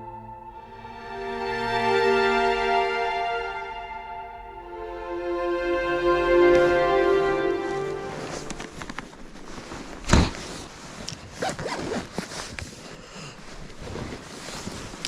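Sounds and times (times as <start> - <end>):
zipper being pulled: 11.3 - 12.6.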